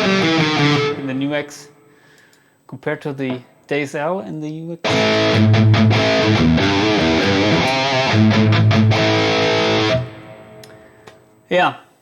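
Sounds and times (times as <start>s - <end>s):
distorted electric guitar riff: 0.0s - 1.2s, 4.8s - 10.9s.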